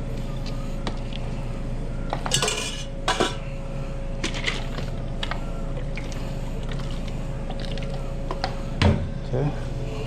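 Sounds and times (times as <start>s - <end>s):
steady hum: 0.0s - 10.0s
dishes and utensils clattering: 2.2s - 3.4s.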